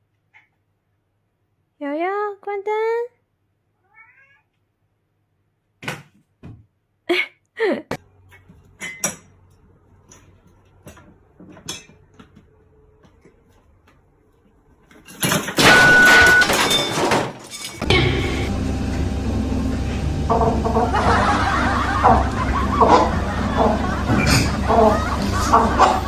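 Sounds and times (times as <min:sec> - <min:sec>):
cat meowing: 0:03.8 - 0:04.6.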